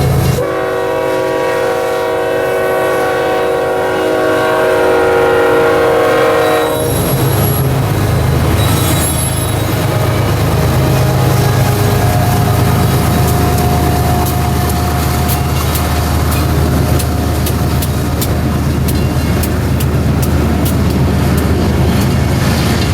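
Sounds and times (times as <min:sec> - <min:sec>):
locomotive air horn chord: 0:00.0 - 0:18.3
diesel locomotive engine rumble: 0:00.0 - 0:22.9
train wheel noise: 0:00.0 - 0:22.9.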